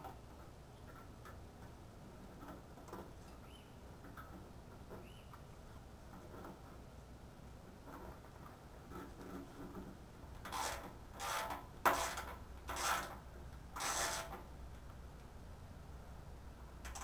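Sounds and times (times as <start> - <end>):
motorcycle parts scraping: 7.8 - 13.2, 13.8 - 14.5.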